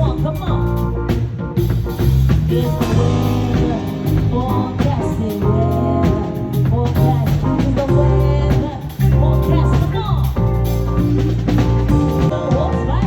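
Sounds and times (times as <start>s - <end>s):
bass line: 0.0s - 13.0s
drum kit beat: 0.0s - 13.0s
person singing: 2.4s - 10.4s, 12.3s - 13.0s.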